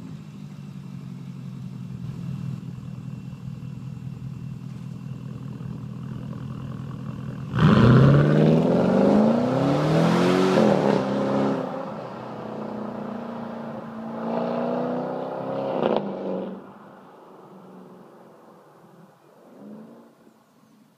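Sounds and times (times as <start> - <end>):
car engine revving: 4.7 - 20.3.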